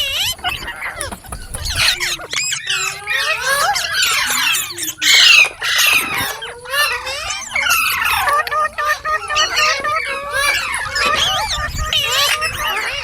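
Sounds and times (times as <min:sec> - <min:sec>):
parrot chirping and squawking: 0:00.0 - 0:13.0.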